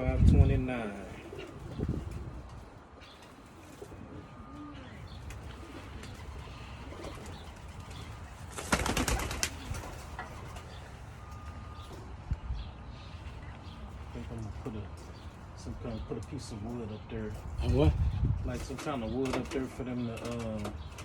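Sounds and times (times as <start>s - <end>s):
pigeons cooing: 0.0s - 21.0s
wings flapping: 5.2s - 10.9s.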